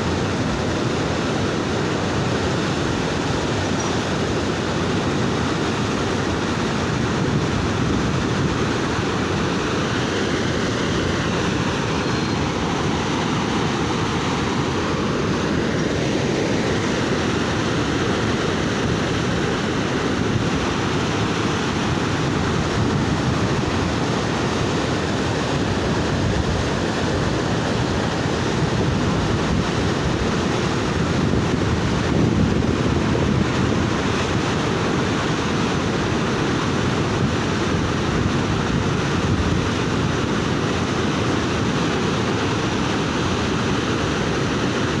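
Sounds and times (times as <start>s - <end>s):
water rushing: 0.0s - 45.0s
wind buffeting microphone: 0.0s - 45.0s.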